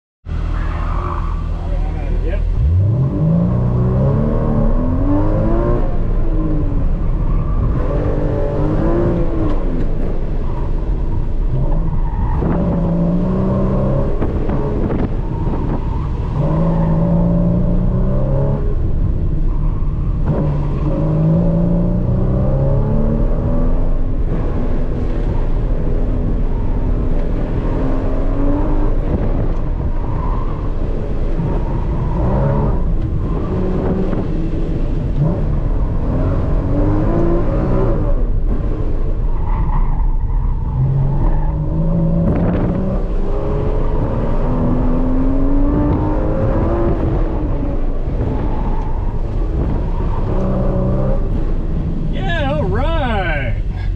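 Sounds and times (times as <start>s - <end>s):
car engine accelerating: 0.3s - 53.9s.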